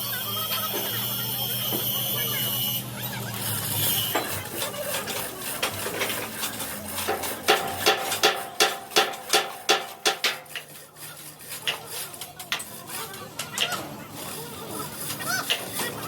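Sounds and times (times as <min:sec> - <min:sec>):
metal clinks and scrapes: 0:03.4 - 0:16.0
hammer striking steel plate: 0:07.0 - 0:10.7.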